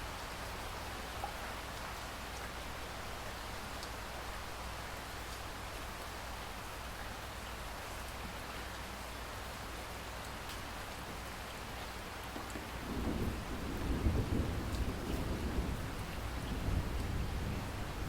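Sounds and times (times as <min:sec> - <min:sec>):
steady rain falling: 0:00.0 - 0:18.0
low rumble of thunder: 0:12.6 - 0:18.0.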